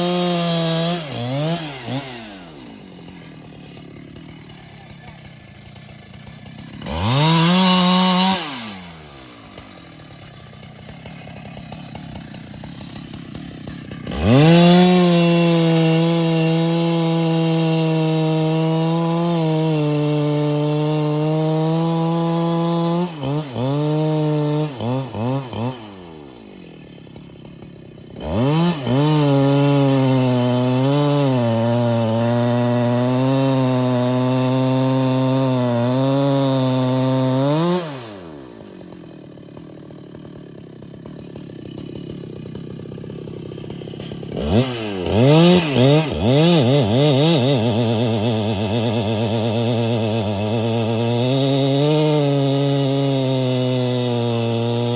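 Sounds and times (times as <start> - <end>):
chainsaw revving and cutting wood: 0.0 - 54.9.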